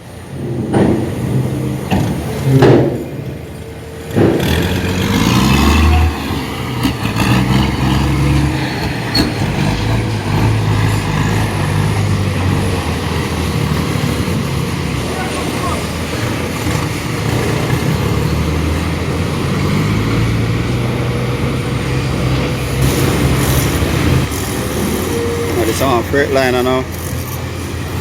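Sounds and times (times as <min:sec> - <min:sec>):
diesel truck engine running: 0:00.0 - 0:28.0
sharp knocks: 0:00.3 - 0:03.5, 0:04.1 - 0:05.2.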